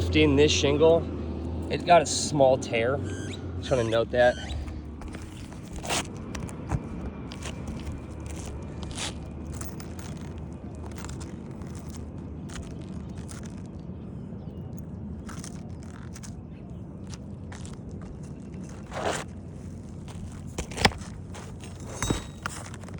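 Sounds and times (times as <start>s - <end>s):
roof shingles scraping and crackling: 3.7s - 13.6s.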